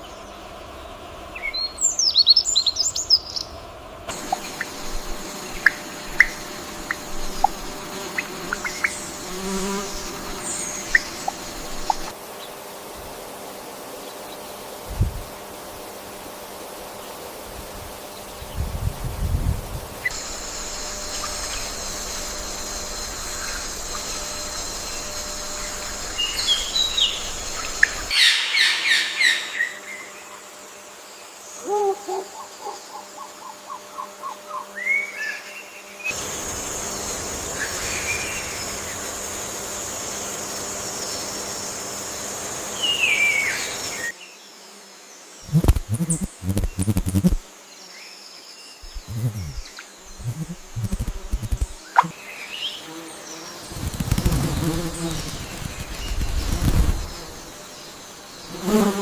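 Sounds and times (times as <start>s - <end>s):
high insect drone: 0.0s - 59.0s
birds chirping and calling: 23.0s - 30.0s, 31.6s - 35.0s, 45.4s - 47.4s, 48.8s - 52.2s
repeated bird notes: 45.4s - 47.4s, 48.8s - 52.1s
low thumps: 45.5s - 47.4s, 48.8s - 51.8s.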